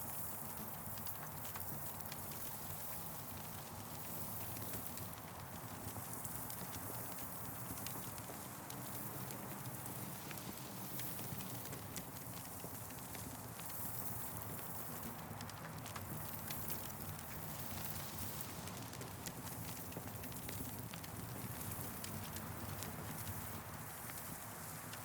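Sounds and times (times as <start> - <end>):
campfire crackling and popping: 7.4 - 25.0.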